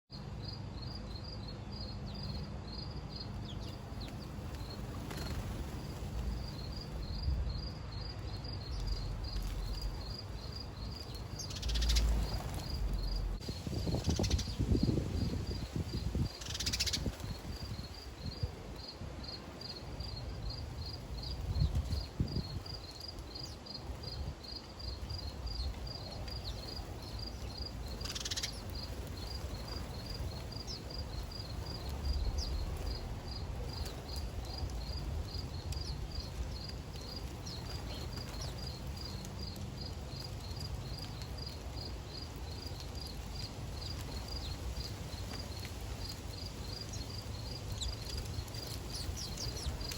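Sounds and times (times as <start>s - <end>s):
insect chirping: 0.2s - 49.9s
low outdoor rumble: 1.9s - 16.3s, 25.2s - 41.8s.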